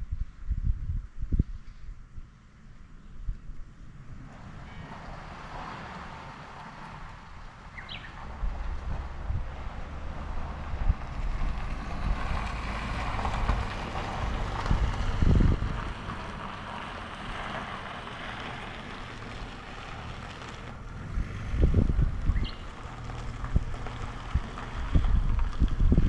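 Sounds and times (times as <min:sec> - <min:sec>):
wind rushing over microphone: 0:00.0 - 0:26.0
motorcycle engine drone: 0:02.0 - 0:26.0.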